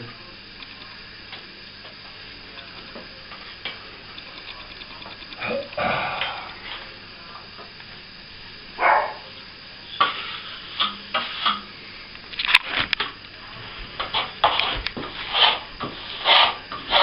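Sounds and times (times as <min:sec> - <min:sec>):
plastering tool scraping: 0:10.1 - 0:11.6, 0:14.0 - 0:17.0.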